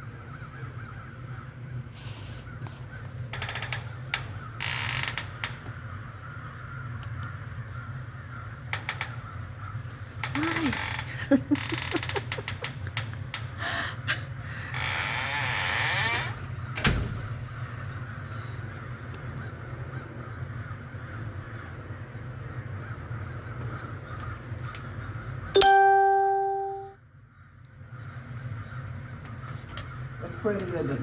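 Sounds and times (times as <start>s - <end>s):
ringing chime-like tone: 25.6s - 27.0s.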